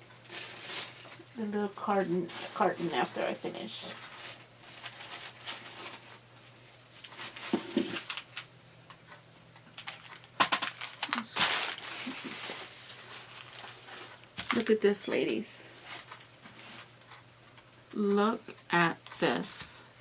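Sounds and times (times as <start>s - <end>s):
packaging crinkling: 0.2s - 8.5s, 9.8s - 14.8s.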